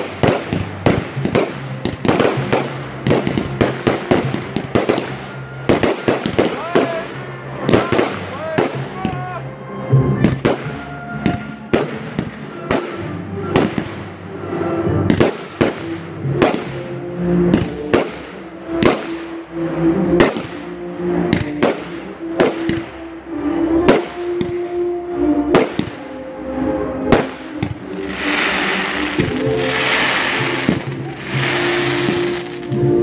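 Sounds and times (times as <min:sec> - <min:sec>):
fireworks bursting: 0:00.0 - 0:09.1, 0:15.0 - 0:16.9, 0:17.5 - 0:19.4, 0:21.3 - 0:23.0, 0:27.1 - 0:33.0
music playing: 0:00.0 - 0:33.0.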